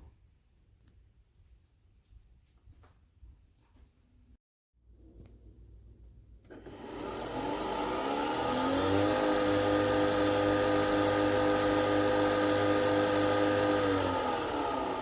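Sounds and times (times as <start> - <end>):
coffee machine motor whine: 6.4 - 15.0.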